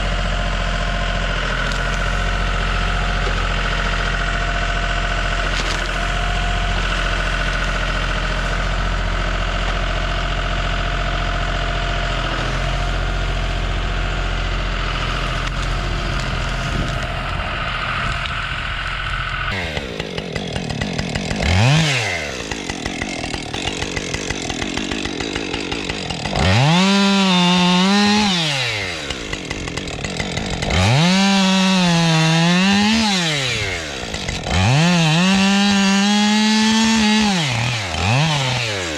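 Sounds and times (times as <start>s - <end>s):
engine running steadily: 0.0s - 20.2s
chainsaw cutting wood: 0.0s - 38.9s.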